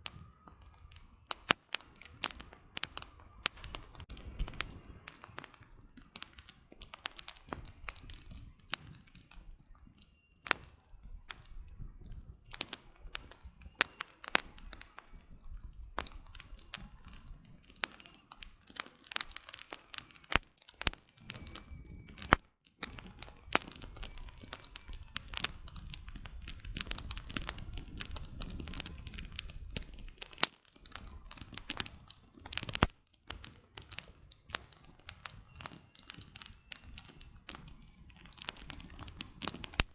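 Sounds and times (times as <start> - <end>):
campfire crackling and popping: 0.0 - 39.9
soft rush of flames: 0.0 - 39.9.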